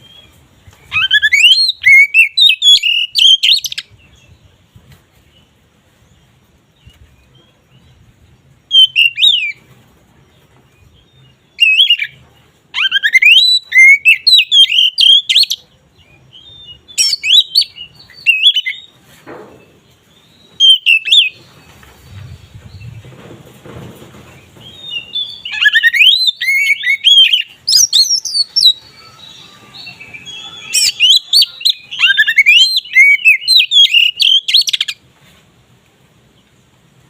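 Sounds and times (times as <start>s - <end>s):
bird singing whistled phrases: 0.9s - 3.9s, 8.7s - 9.6s, 11.6s - 15.6s, 16.3s - 18.9s, 20.6s - 21.4s, 24.8s - 35.0s.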